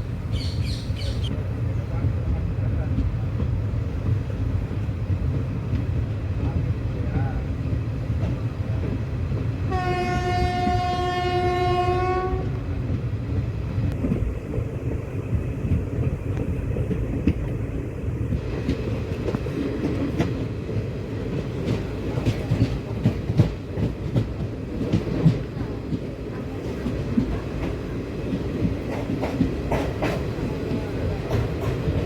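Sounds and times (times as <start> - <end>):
passenger train rumbling: 0.0 - 32.0
locomotive horn blast: 9.7 - 12.6.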